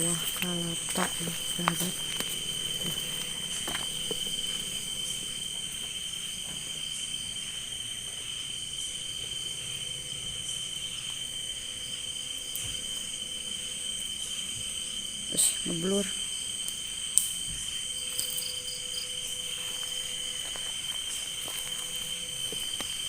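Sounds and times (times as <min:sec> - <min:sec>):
crickets chirring: 0:00.0 - 0:23.0.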